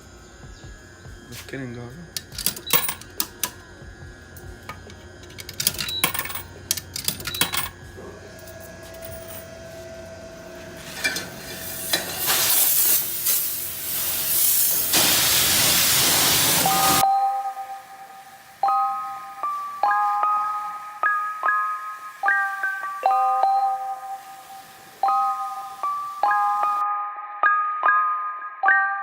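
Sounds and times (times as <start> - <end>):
coins clicking into machine: 2.1 - 3.6, 4.8 - 9.5
pressure washer spraying hiss: 10.8 - 17.0, 23.7 - 26.8.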